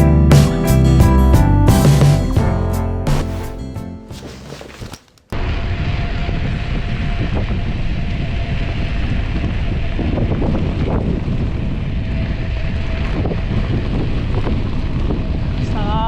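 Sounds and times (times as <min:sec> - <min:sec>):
wind buffeting microphone: 0:05.4 - 0:16.0.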